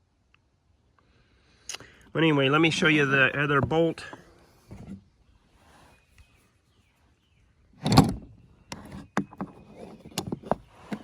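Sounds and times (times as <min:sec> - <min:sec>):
rifle bolt scraping slide: 0:07.8 - 0:11.0.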